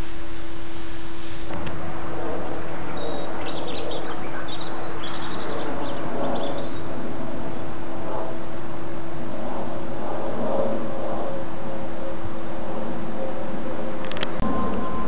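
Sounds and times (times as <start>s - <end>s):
background noise: 0.0s - 15.0s
constant low hum: 0.0s - 15.0s
small bird twittering: 2.7s - 6.8s.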